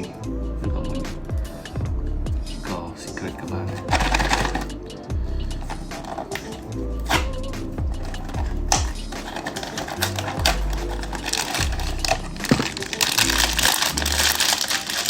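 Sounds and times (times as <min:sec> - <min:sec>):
background music with bass line: 0:00.0 - 0:15.0
packaging clicks and rustling: 0:03.7 - 0:04.8, 0:05.7 - 0:07.3, 0:08.0 - 0:15.0.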